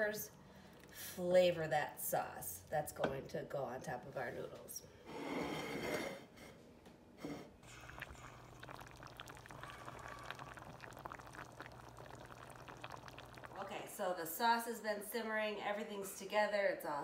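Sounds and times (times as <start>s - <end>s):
sauce simmering with bubbling pops: 0.0s - 1.7s, 7.6s - 13.8s
low steady hum: 7.6s - 14.2s.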